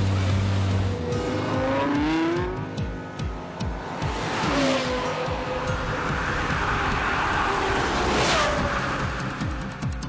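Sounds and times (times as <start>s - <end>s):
car engine revving high: 0.0s - 2.7s.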